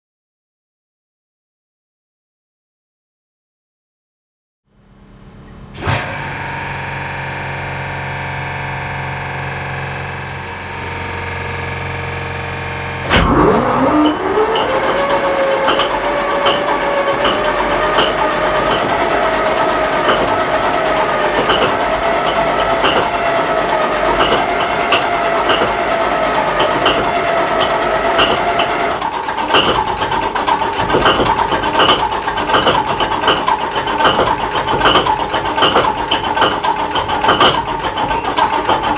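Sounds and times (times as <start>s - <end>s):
mechanical hum: 4.7s - 38.9s
diesel engine starting with bang: 5.3s - 38.9s
rapid regular engine ticking: 13.6s - 38.9s.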